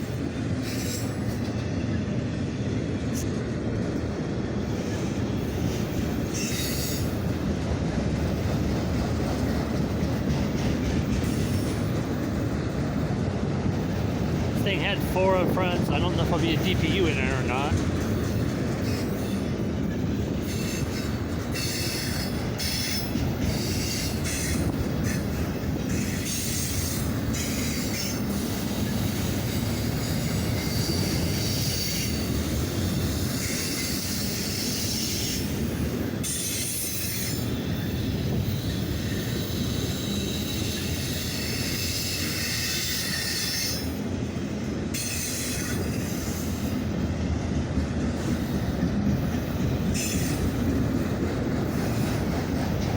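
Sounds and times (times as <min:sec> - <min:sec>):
train wheels squealing: 0:00.0 - 0:02.0, 0:04.6 - 0:07.5, 0:08.2 - 0:13.1, 0:18.2 - 0:44.2, 0:44.9 - 0:47.0, 0:48.2 - 0:50.9
freight cars rumbling on rails: 0:00.0 - 0:34.7, 0:43.9 - 0:52.9.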